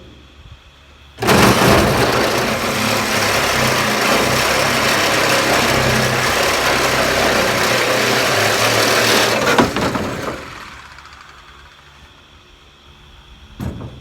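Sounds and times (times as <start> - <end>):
power tool cutting sheet metal: 1.2 - 11.8.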